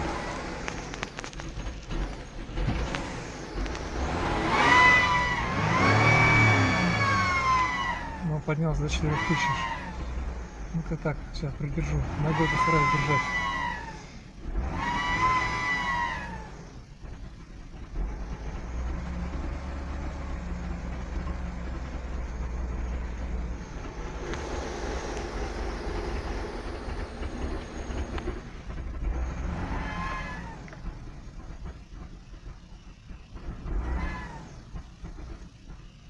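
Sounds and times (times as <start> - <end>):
car engine idling unsteadily: 0.0 - 4.5, 5.1 - 36.0
high whistling squeal: 4.5 - 8.3, 12.3 - 14.1, 14.7 - 16.7, 29.2 - 30.8.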